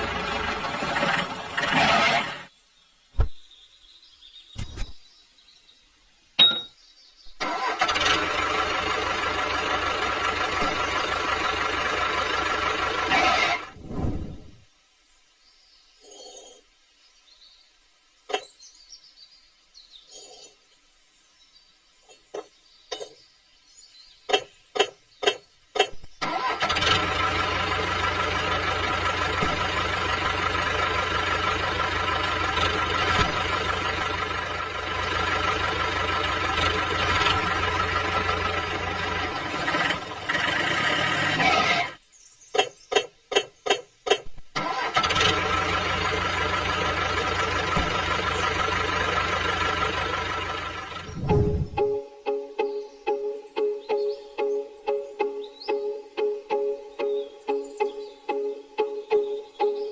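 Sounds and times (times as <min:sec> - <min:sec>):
engine starting and running: 0:00.0 - 0:02.5, 0:07.3 - 0:14.3, 0:24.3 - 0:42.0, 0:42.6 - 0:59.9.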